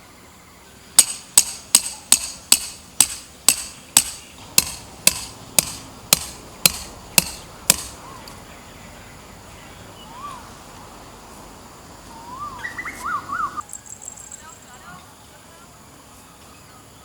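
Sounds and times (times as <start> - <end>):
mallet striking tent stakes: 1.0 - 8.4
bird calling: 3.3 - 10.7, 12.0 - 15.0.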